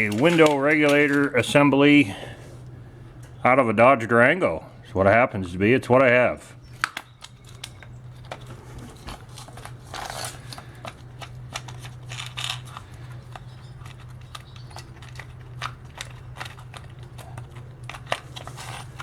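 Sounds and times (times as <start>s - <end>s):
parts clicking and rattling: 0.0s - 1.8s, 6.8s - 19.0s
steady low hum: 0.0s - 19.0s.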